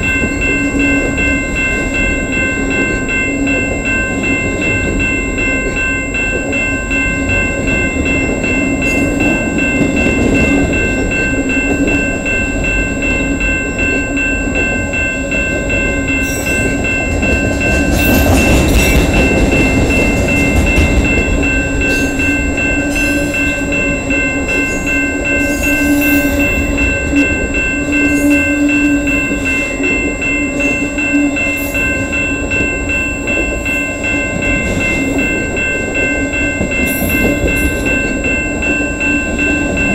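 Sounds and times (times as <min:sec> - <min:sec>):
train wheels rolling on rail: 0:00.0 - 0:39.9.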